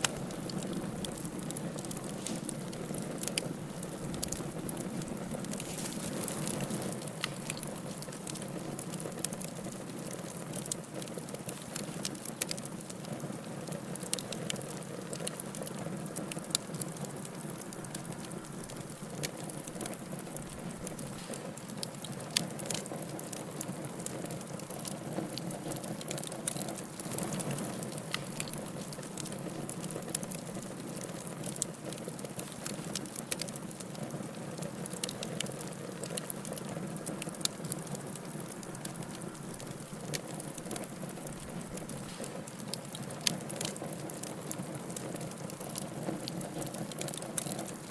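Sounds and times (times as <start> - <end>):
wood fire crackling: 0.0 - 47.9
hiss of flame: 1.5 - 4.3, 41.5 - 42.9.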